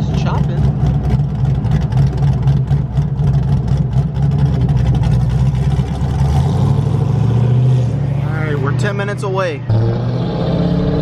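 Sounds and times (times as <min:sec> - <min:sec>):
car engine idling with lopey beat: 0:00.0 - 0:06.0.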